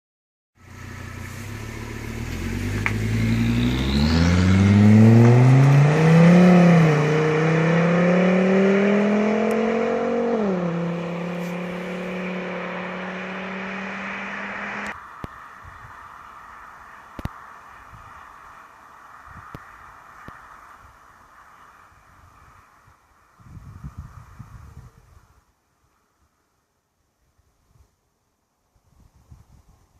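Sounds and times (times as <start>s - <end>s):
car engine revving: 0.7s - 15.0s.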